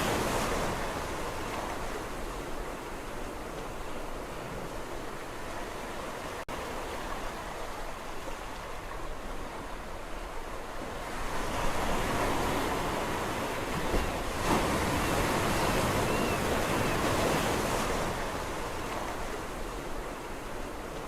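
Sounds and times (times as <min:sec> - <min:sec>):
sea waves breaking on shore: 0:00.0 - 0:21.0.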